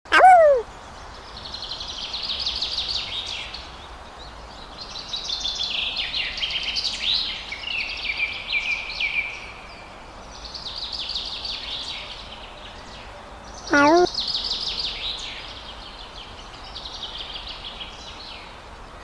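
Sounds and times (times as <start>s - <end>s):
outdoor background noise: 0.0s - 19.0s
small birds chirping: 0.1s - 6.9s, 13.5s - 14.4s.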